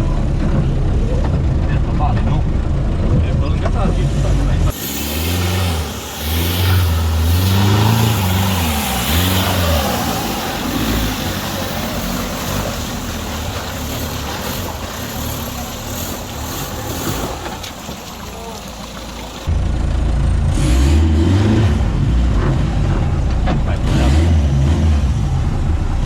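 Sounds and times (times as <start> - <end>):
engine revving: 3.0 - 17.9, 20.2 - 26.0.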